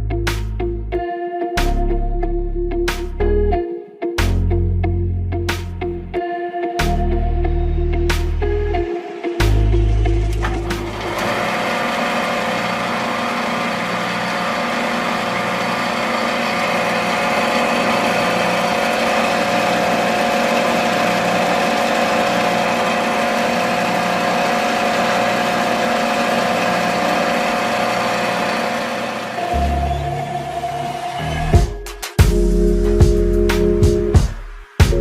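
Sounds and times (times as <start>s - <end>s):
small motor running: 10.5s - 31.1s.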